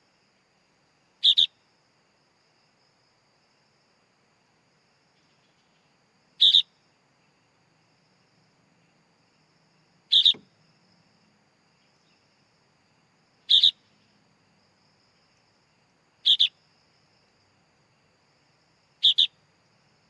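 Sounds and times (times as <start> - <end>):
bird chick calling: 6.4 - 6.7, 10.1 - 10.5, 13.5 - 13.8, 16.3 - 16.5, 19.0 - 19.3.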